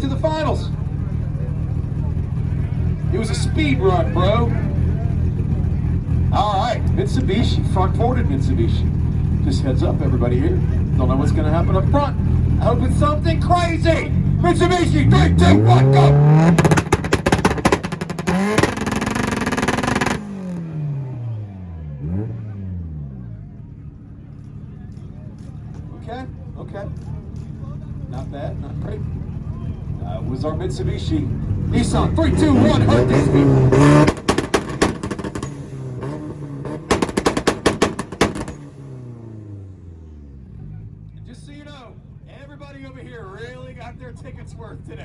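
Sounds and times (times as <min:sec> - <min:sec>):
exhaust bangs and pops: 0:00.0 - 0:20.8, 0:24.2 - 0:39.2
car engine on rev limiter: 0:00.0 - 0:41.2.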